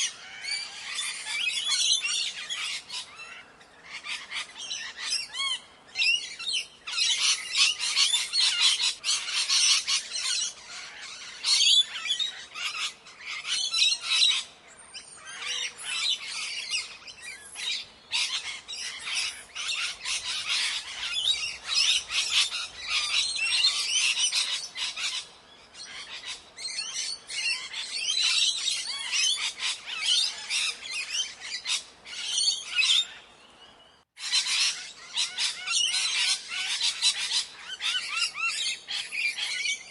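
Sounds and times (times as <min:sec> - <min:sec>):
parrots squawking and chattering: 0:00.0 - 0:14.5, 0:15.2 - 0:33.2, 0:34.2 - 0:39.9.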